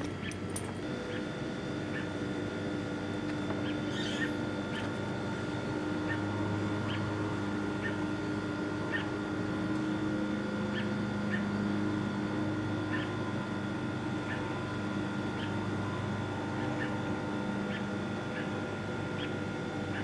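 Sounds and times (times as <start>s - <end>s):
steady hum: 0.0s - 20.0s
bird chirping: 3.9s - 4.8s.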